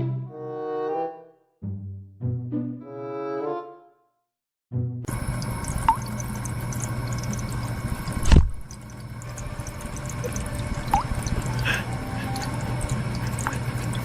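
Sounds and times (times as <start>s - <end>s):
rising drip-like plinks: 5.1s - 14.0s
water running: 5.1s - 14.0s.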